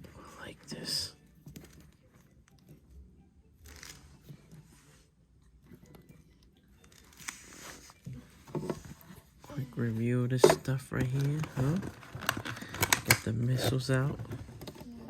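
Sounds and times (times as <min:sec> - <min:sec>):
plastic packaging rustling: 0:10.4 - 0:14.9
plastic toy parts clicking: 0:11.4 - 0:13.7.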